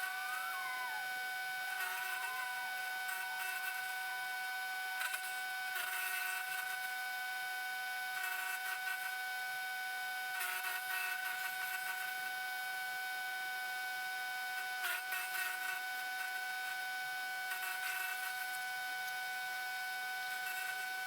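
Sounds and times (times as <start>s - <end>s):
wood chipper whining: 0.0s - 4.6s.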